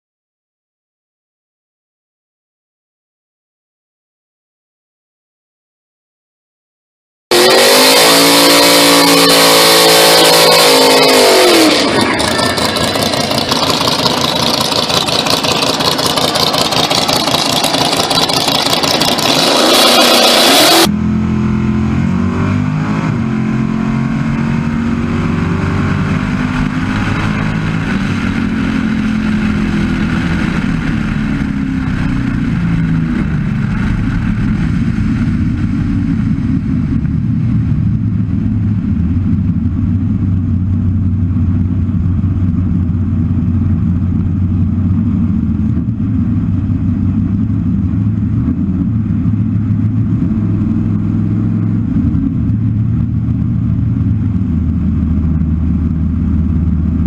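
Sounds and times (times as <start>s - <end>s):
car engine revving and idling: 7.3s - 57.0s.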